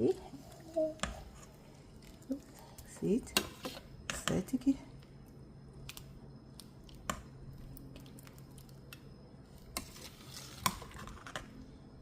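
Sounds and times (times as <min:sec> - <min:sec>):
liquid stirring: 0:05.9 - 0:11.5.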